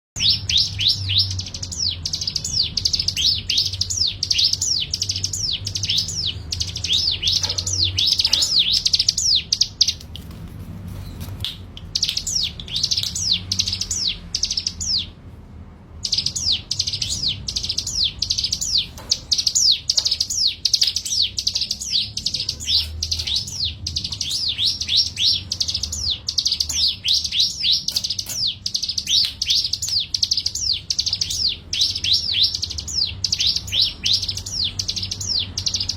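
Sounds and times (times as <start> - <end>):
songbird chirping: 0.2 - 10.3, 10.9 - 15.2, 15.9 - 35.9.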